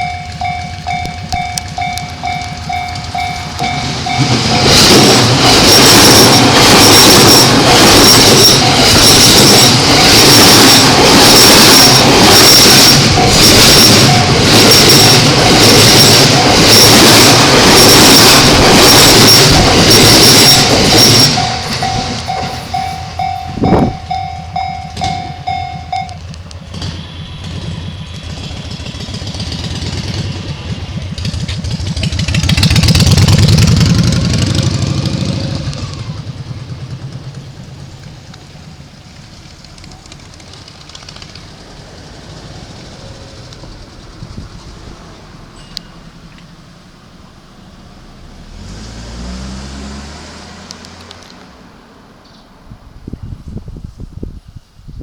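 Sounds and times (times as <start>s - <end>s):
crossing electronic alarm ringing: 0.0s - 33.6s
vehicle passing: 0.0s - 45.6s, 46.6s - 52.2s
train wheels clattering on rails: 0.0s - 49.4s.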